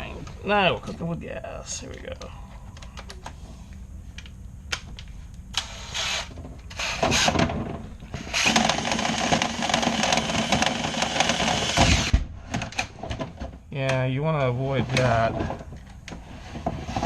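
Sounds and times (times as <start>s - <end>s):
power drill spinning brush in duct: 8.2s - 12.1s.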